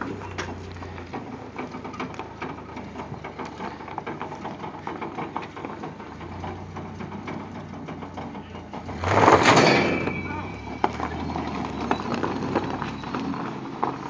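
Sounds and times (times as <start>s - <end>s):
small rattles and clicks: 0.0s - 10.0s
truck engine low hum: 0.0s - 14.0s.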